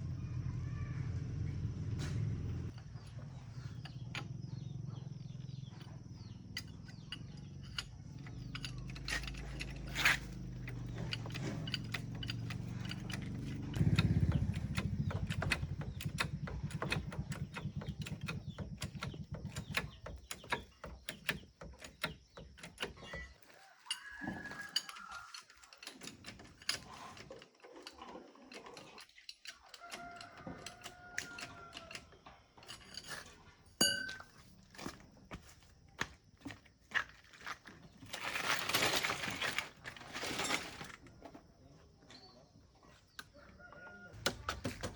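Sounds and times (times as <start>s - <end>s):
rapid mechanical clicking: 6.5s - 23.3s.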